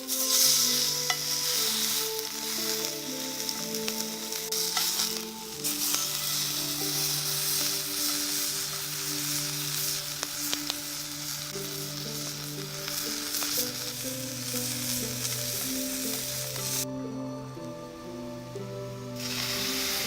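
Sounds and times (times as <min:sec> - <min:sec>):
food sizzling in a pan: 0:00.0 - 0:16.9, 0:18.8 - 0:20.0
background music with held notes: 0:00.0 - 0:20.0
sharp pops of frying: 0:04.7 - 0:16.8.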